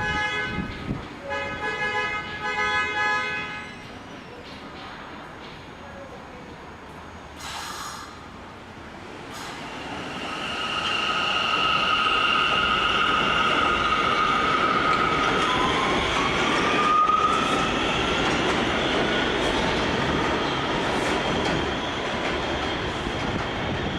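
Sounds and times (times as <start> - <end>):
subway train rumbling: 0.0 - 23.9.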